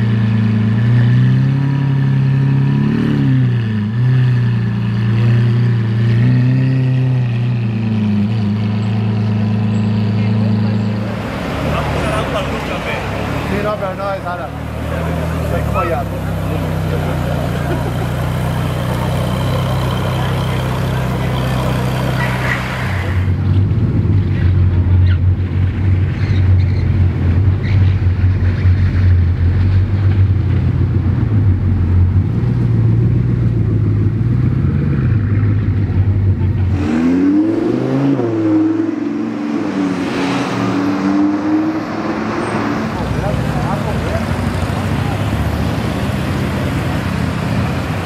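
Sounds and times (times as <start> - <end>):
car engine deep hum rolling by: 0.0 - 48.0
car engine revving: 0.0 - 48.0
car engine running low tone: 7.4 - 36.8.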